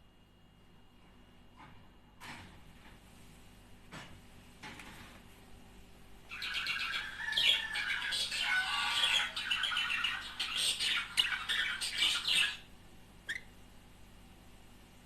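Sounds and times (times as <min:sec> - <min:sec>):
budgerigars chattering and warbling: 0:06.3 - 0:12.7.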